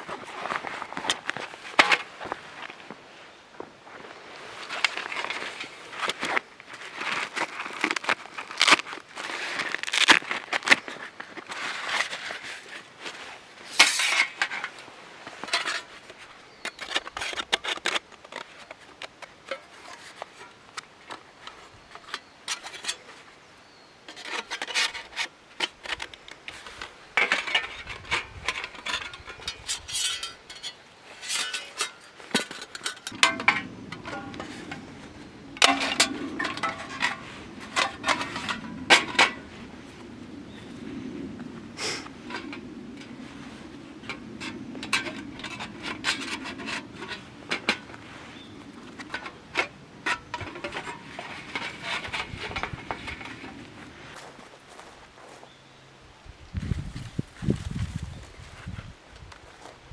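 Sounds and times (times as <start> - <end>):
scraping and rubbing on wood: 4.6 - 23.3, 24.1 - 40.0, 41.8 - 54.2.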